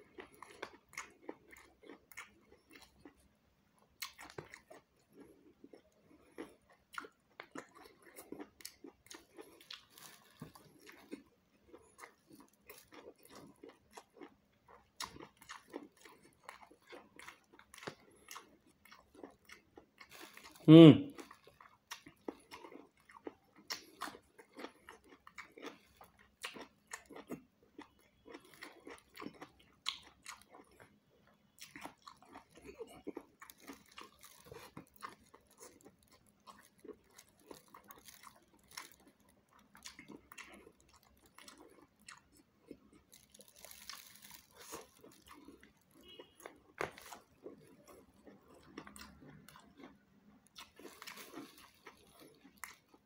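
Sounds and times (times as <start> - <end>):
person chewing vegetables: 0.0 - 53.0
mouth sounds: 20.6 - 21.2.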